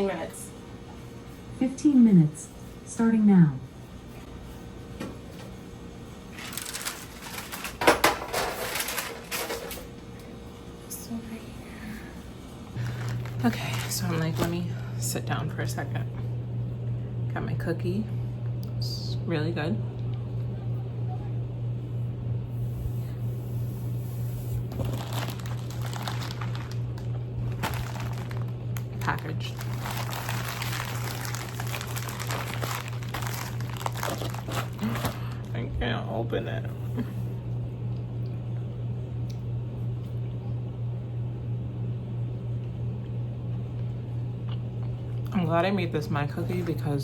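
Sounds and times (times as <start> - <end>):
rustling and small clattering: 6.3 - 9.9
low hum: 8.7 - 45.3
packaging crinkling: 12.8 - 14.5, 24.4 - 35.5.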